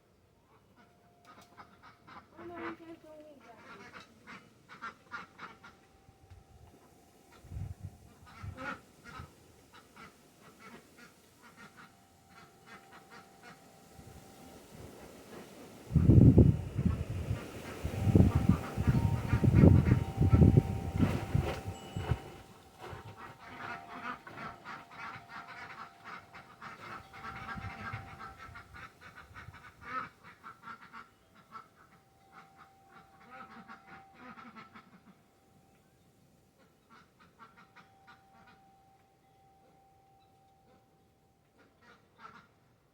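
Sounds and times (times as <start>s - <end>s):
birds calling: 10.0s - 29.5s
ducks quacking: 16.8s - 22.2s, 22.8s - 31.6s.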